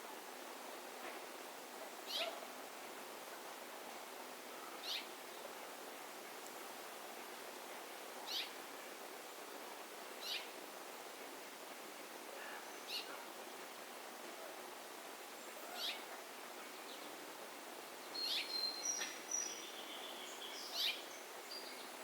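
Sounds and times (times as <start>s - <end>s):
background hiss: 0.0s - 22.0s.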